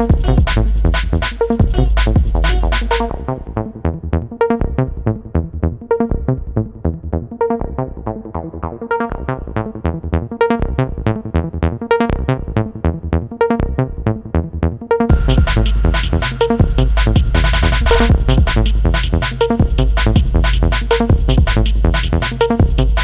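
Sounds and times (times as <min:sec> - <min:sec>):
quick synthesizer notes: 0:00.0 - 0:03.1, 0:15.1 - 0:23.0.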